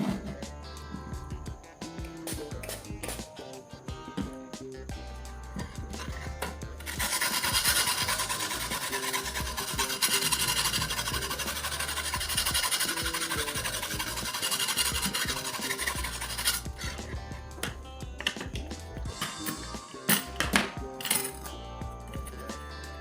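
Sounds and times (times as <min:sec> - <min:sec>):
knife scraping on sharpener: 0:06.0 - 0:17.2.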